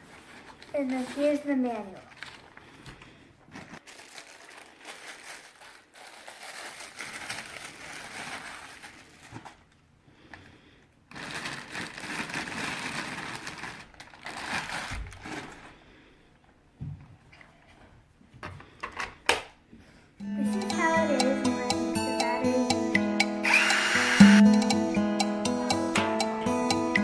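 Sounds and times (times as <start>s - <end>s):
packaging rustling and crinkling: 0.0s - 9.8s, 11.1s - 15.8s.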